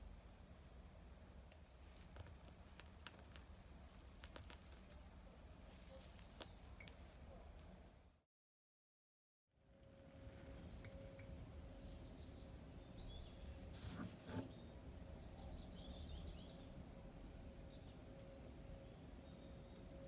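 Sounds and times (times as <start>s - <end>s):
small birds chirping: 1.7s - 7.7s, 10.1s - 19.9s
low steady rumble: 9.7s - 20.0s.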